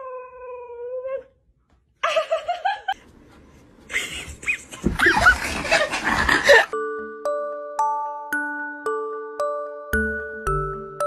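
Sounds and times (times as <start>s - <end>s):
people laughing loudly: 3.9s - 6.7s.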